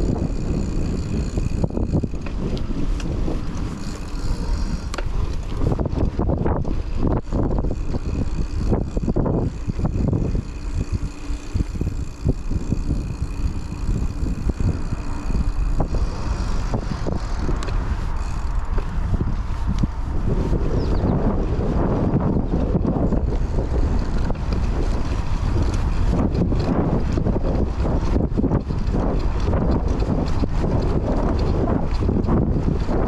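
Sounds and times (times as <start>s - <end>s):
sharp rattling clicks: 0.0s - 20.3s
bike tyre noise: 0.0s - 33.0s
wind rumbling on microphone: 0.0s - 33.0s.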